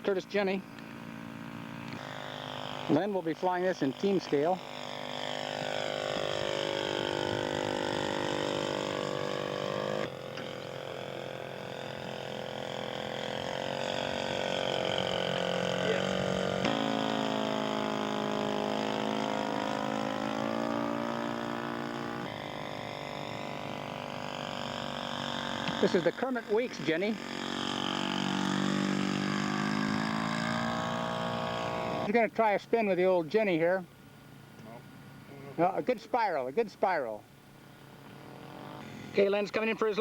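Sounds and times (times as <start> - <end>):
model plane engine running: 0.0 - 40.0.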